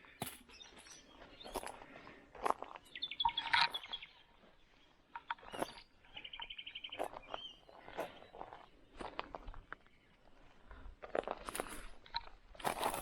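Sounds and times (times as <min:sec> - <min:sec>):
crunching footsteps on debris: 0:00.0 - 0:13.0
small birds chirping: 0:00.0 - 0:13.0
bird trill: 0:02.8 - 0:08.7.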